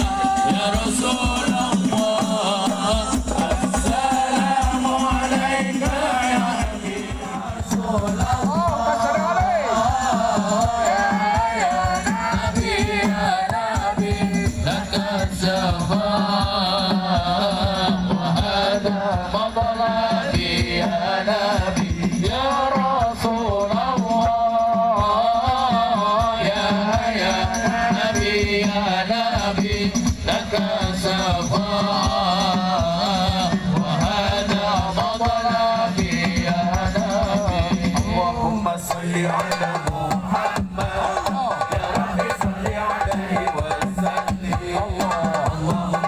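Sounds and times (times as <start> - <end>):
hand drum playing: 0.0 - 16.7, 33.1 - 46.0
devotional singing: 0.0 - 46.0.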